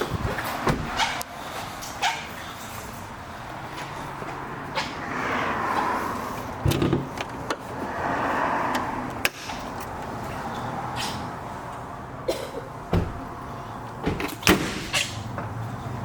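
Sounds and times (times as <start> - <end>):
passing road traffic: 0.0 - 16.0
low thumps: 12.9 - 13.4.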